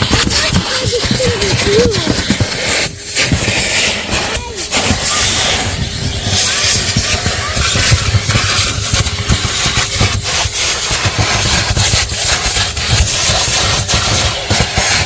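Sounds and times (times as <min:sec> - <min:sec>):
vacuum cleaner running: 0:00.0 - 0:08.5.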